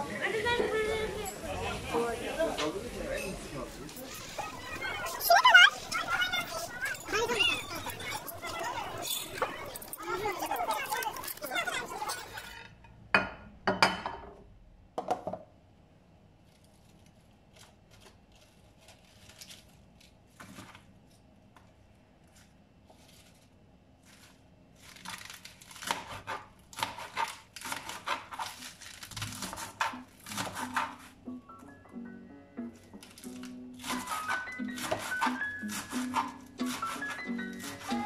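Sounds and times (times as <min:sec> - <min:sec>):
rustling and crinkling: 0:16.4 - 0:25.9.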